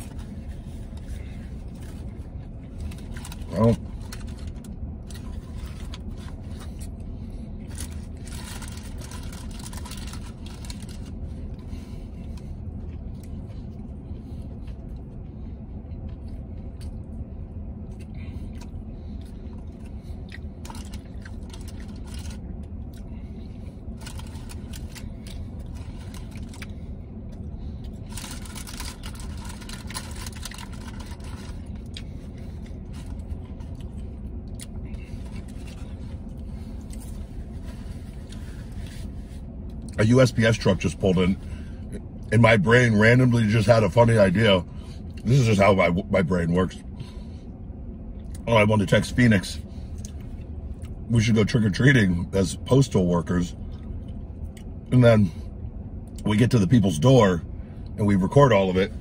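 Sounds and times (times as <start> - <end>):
low hum in truck cab: 0.0 - 59.0
person chewing: 17.8 - 39.0.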